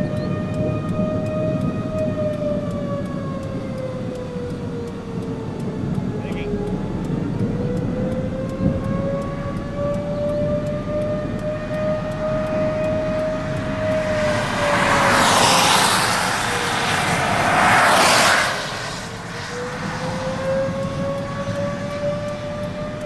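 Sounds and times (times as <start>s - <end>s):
warning siren wailing: 0.0s - 23.0s
loud rushing noise: 13.3s - 21.8s.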